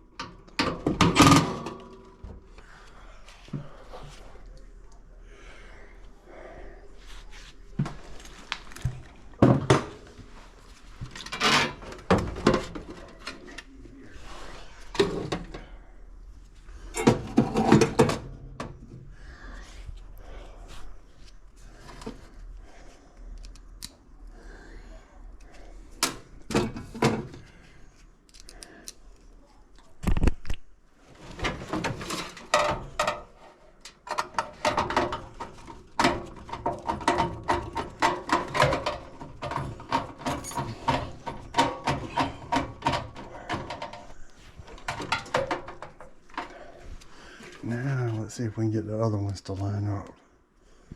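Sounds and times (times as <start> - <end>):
tools knocking and clunking: 11.0 - 13.6, 17.0 - 18.8, 31.4 - 46.8.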